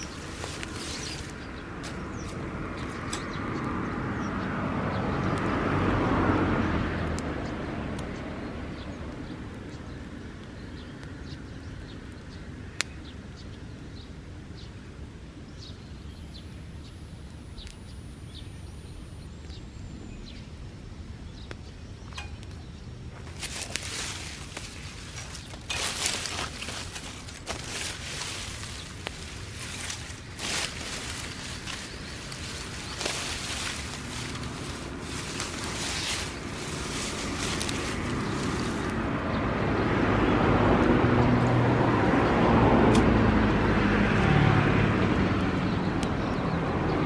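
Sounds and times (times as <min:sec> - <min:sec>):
grass fire crackling: 0:00.0 - 0:46.9
broad rushing sound: 0:23.3 - 0:39.2.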